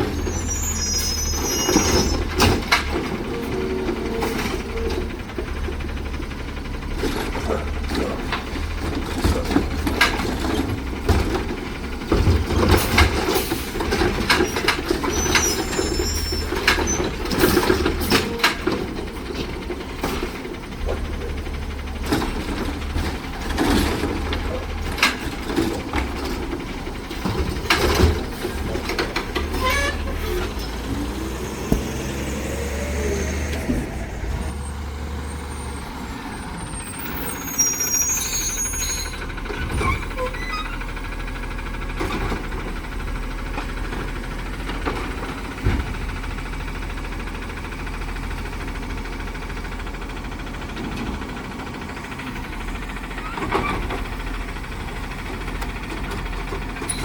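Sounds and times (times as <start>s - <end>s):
short rising squeal: 0.0s - 2.4s, 29.5s - 39.2s
garbage truck engine running: 0.0s - 57.0s.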